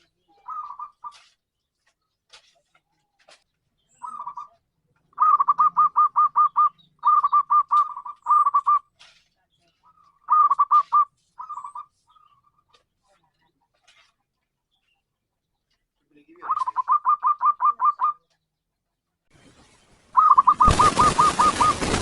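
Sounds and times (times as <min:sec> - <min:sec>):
dove cooing: 0:00.4 - 0:01.2, 0:04.0 - 0:08.9, 0:10.3 - 0:11.9, 0:16.4 - 0:18.2, 0:20.2 - 0:22.0.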